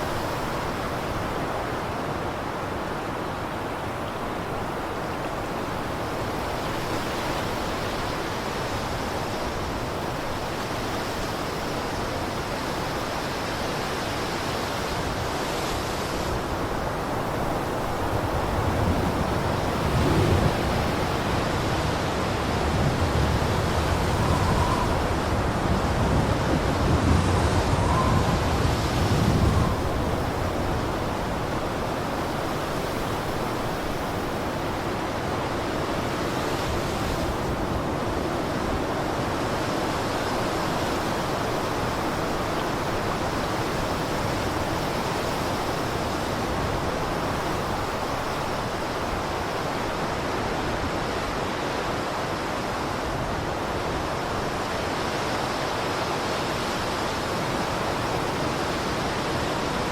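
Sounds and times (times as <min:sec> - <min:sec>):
blizzard wind rushing: 0:14.0 - 0:59.9.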